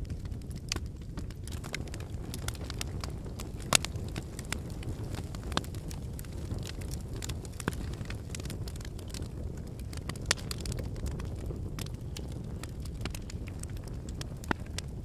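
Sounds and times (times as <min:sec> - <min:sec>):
burning logs crackling and popping: 0:00.0 - 0:15.0
campfire flames rumbling: 0:00.0 - 0:15.0.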